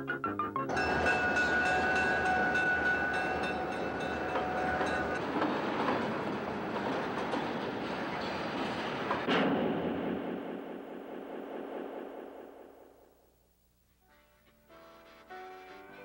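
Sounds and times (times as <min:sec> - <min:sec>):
diesel locomotive rumble: 0:00.7 - 0:09.3
wheels clicking: 0:00.7 - 0:09.3
steady tones: 0:00.7 - 0:13.6.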